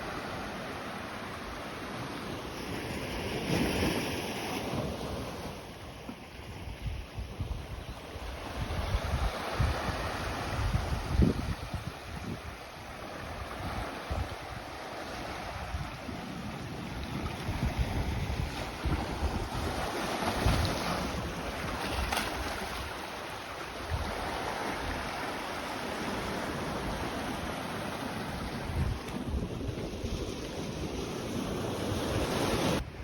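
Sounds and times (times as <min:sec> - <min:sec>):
wind buffeting microphone: 0:06.4 - 0:23.0, 0:26.0 - 0:33.0
sea waves washing onto beach: 0:08.4 - 0:32.8.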